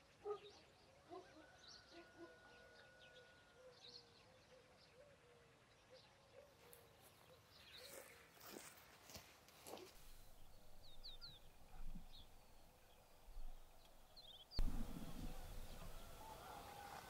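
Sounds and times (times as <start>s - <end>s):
small birds chirping: 3.0s - 17.0s
low rumble: 14.6s - 16.6s.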